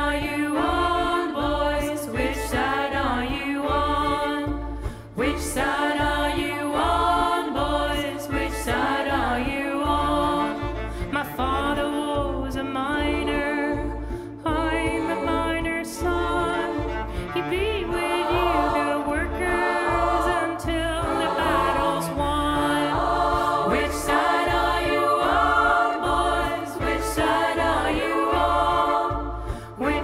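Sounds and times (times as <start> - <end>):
choir singing: 0.0 - 10.8, 12.7 - 30.0
cello: 0.0 - 30.0.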